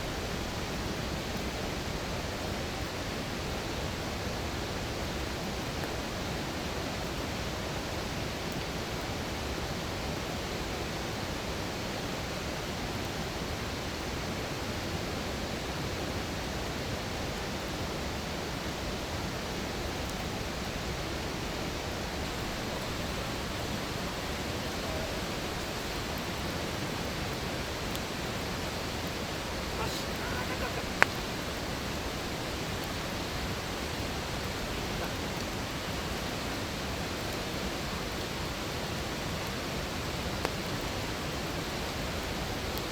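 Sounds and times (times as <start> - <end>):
campfire hissing: 0.0 - 42.9
fire crackles: 16.1 - 42.9.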